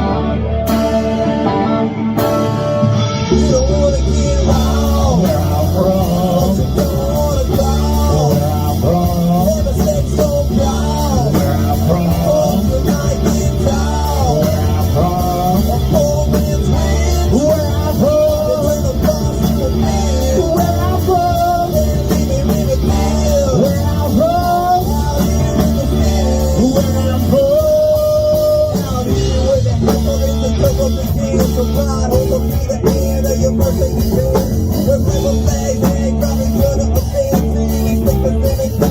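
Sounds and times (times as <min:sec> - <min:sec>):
rock music with singing: 0:00.0 - 0:38.9.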